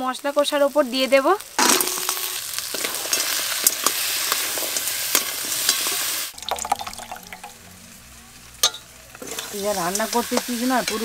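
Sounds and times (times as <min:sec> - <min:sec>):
food sizzling in hot oil: 0:00.0 - 0:11.0
metal spatula scraping a pan: 0:01.6 - 0:06.1, 0:08.6 - 0:11.0.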